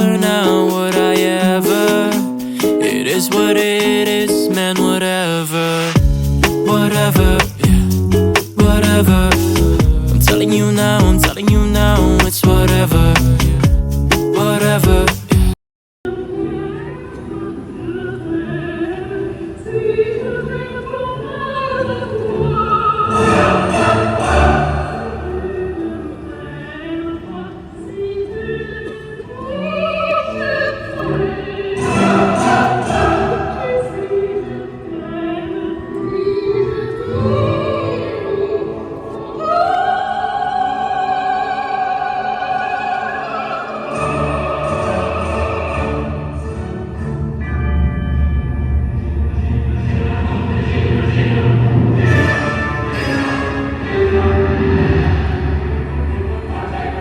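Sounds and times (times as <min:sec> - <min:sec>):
operatic singing with vibrato: 0:00.0 - 0:57.0
orchestra playing: 0:23.0 - 0:25.5, 0:43.8 - 0:57.0.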